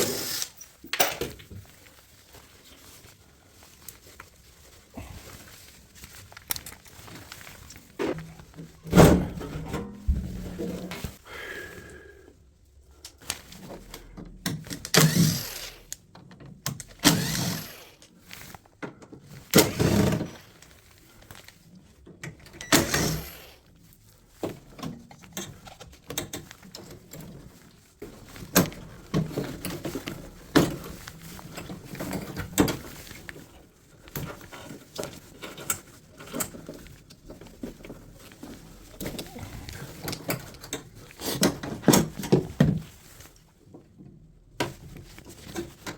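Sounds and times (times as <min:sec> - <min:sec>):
washing machine parts clunking: 0:08.0 - 0:11.0
loud thunks: 0:08.8 - 0:10.9.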